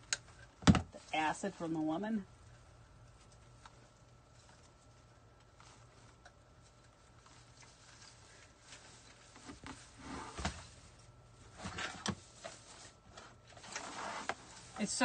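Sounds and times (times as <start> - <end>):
rustling: 2.4 - 15.0.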